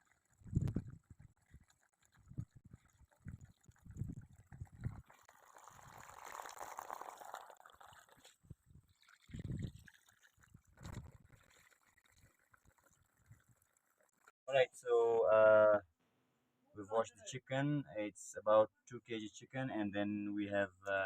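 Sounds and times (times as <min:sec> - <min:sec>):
water pouring: 0:00.0 - 0:14.3.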